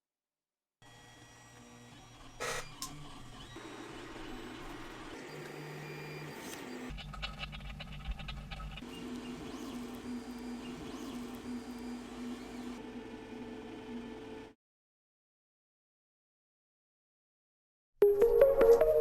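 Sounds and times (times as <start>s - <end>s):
stepper motor humming: 8.8s - 14.5s.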